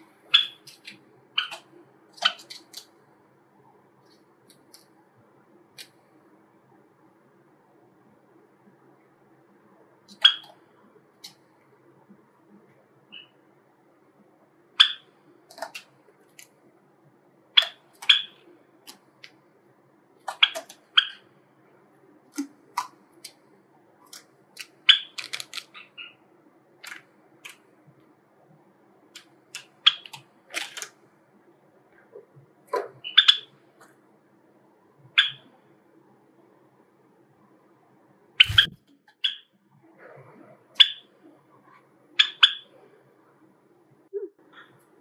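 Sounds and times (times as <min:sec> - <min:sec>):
sparrows chip calls: 0:00.3 - 0:02.8, 0:17.6 - 0:18.4, 0:33.0 - 0:33.5, 0:35.2 - 0:35.5, 0:38.4 - 0:39.4, 0:42.2 - 0:42.8.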